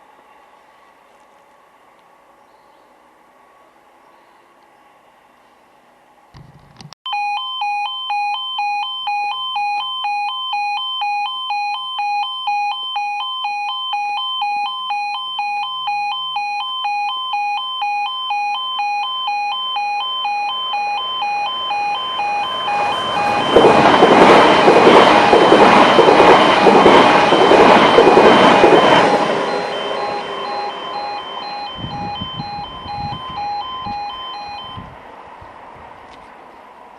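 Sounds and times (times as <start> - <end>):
level crossing alarm two-tone warble: 7.1 - 34.9
train rushing past: 20.7 - 36.9.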